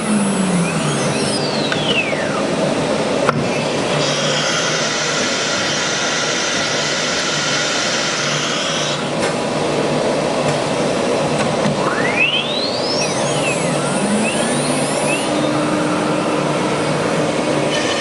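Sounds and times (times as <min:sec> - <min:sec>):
whine sweeping in pitch: 0:00.0 - 0:03.0, 0:11.7 - 0:18.0
cnc router running: 0:00.0 - 0:18.0.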